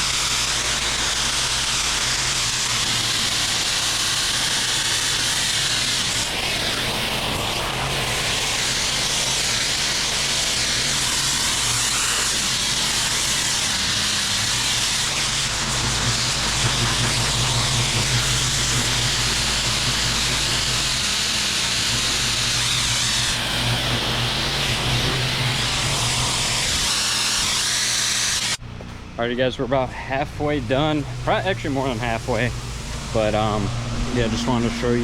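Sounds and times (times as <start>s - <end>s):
water jet hissing: 0.0s - 28.6s, 29.7s - 35.0s
pressure washer engine hum: 0.0s - 35.0s.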